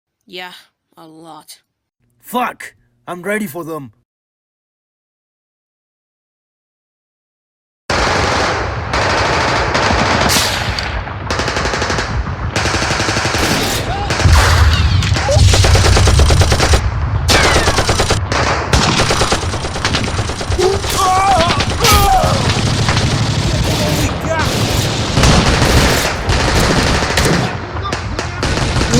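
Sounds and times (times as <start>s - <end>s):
machine-gun and rifle fire: 7.9s - 28.9s.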